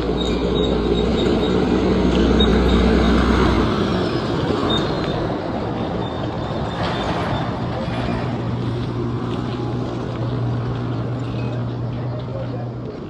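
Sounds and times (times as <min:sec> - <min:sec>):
heavy vehicle engine rumble: 0:00.0 - 0:13.0
steady traffic noise: 0:00.0 - 0:13.0.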